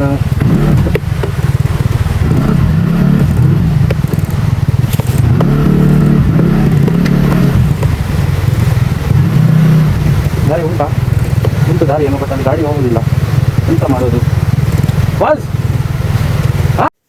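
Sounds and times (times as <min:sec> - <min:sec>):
scooter engine revving: 0:00.0 - 0:16.9
clicks and knocks from rough track: 0:00.2 - 0:09.2, 0:10.1 - 0:12.1, 0:13.8 - 0:15.2.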